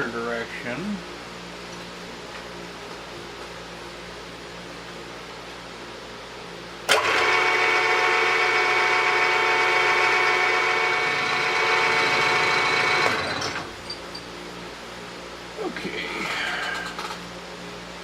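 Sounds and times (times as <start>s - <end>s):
milling spindle motor whining: 6.9s - 13.7s.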